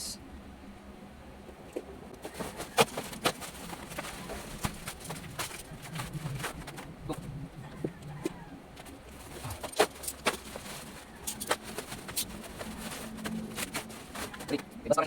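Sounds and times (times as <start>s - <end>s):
packaging clicks and knocks: 2.2s - 6.9s, 7.8s - 14.7s
dove cooing: 2.2s - 14.8s.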